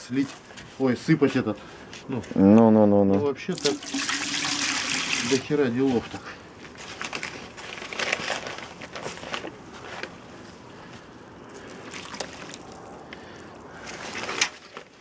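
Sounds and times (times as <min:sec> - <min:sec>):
water sloshing in a container: 0:03.5 - 0:06.1, 0:11.6 - 0:15.0.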